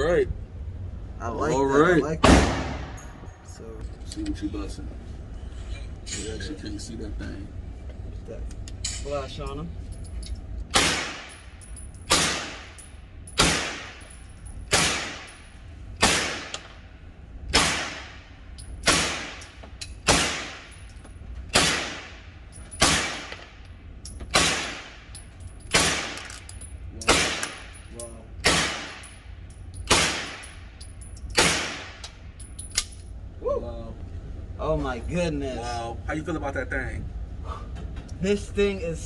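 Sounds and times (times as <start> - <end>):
echoing gunshots: 2.2 - 3.0, 10.7 - 11.5, 12.1 - 12.8, 13.4 - 14.1, 14.7 - 15.4, 16.0 - 16.9, 17.5 - 20.8, 21.5 - 23.6, 24.3 - 25.1, 25.7 - 26.4, 27.1 - 27.8, 28.4 - 29.1, 29.9 - 30.6, 31.4 - 32.0.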